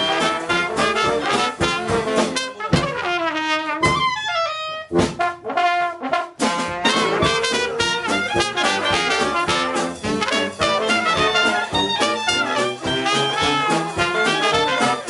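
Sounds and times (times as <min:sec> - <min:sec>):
dixieland jazz band playing: 0:00.0 - 0:15.0
trombone: 0:00.0 - 0:15.0
trumpet: 0:00.0 - 0:15.0.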